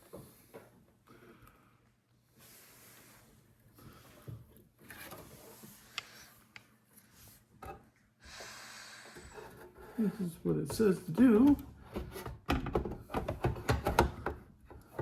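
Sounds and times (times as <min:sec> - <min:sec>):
faint rubbing and rustling: 0:02.2 - 0:08.0.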